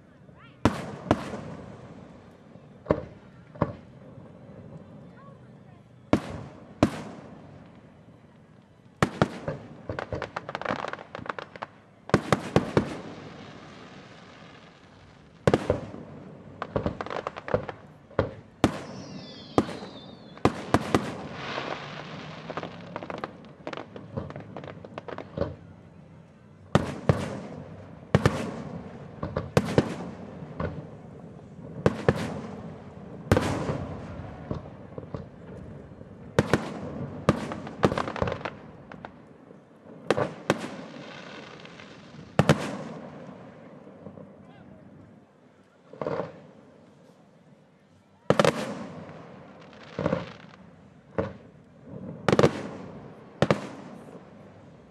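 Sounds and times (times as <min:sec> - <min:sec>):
fireworks bursting with bangs: 0:00.0 - 0:47.2, 0:48.2 - 0:54.9
small firework pops: 0:02.2 - 0:04.0, 0:06.1 - 0:30.9, 0:31.8 - 0:32.6, 0:33.3 - 0:39.4, 0:40.1 - 0:44.6, 0:45.6 - 0:47.2, 0:48.3 - 0:54.2
falling whistle of firework: 0:18.6 - 0:23.0.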